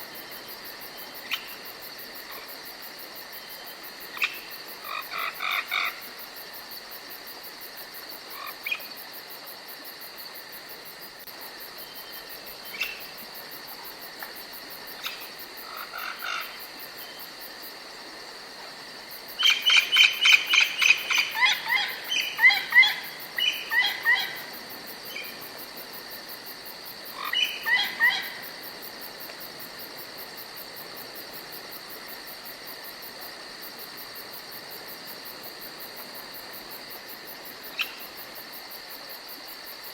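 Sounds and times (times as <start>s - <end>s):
crickets chirping: 0.0s - 39.9s
songbirds calling: 19.4s - 24.5s, 27.2s - 28.4s.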